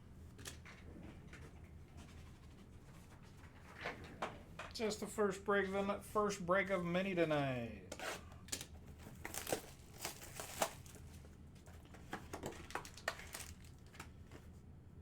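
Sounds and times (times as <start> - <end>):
plastic packaging crinkling and tearing: 8.5 - 11.2, 12.3 - 14.1.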